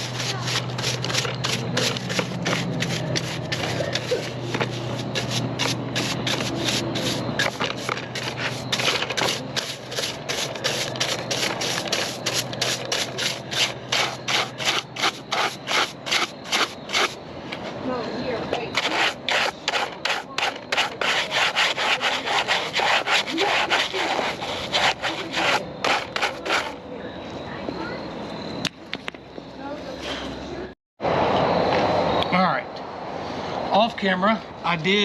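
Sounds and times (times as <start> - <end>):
rhythmic scraping strokes: 0.0 - 17.2, 18.6 - 26.8
steady low hum: 0.0 - 34.6.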